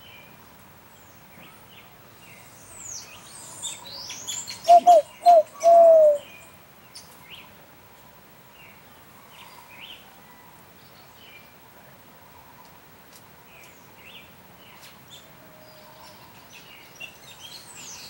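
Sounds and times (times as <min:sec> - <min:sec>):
birds chirping and twittering: 0:00.9 - 0:10.0
loud low bird notes: 0:04.6 - 0:06.2.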